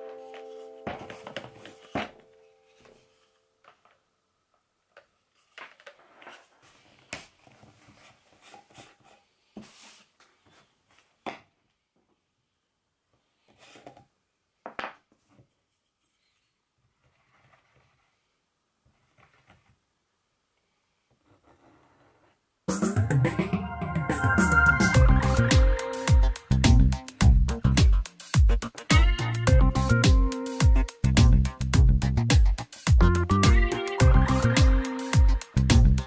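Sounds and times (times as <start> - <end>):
soft scraping and rubbing: 5.3 - 11.1, 15.2 - 19.8, 20.7 - 22.4.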